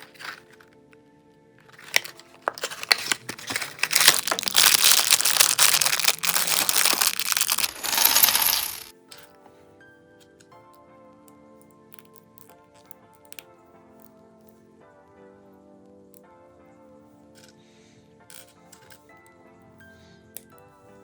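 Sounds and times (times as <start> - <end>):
plastic pieces clattering: 0.0 - 0.6, 1.7 - 8.9
background music: 0.0 - 21.0.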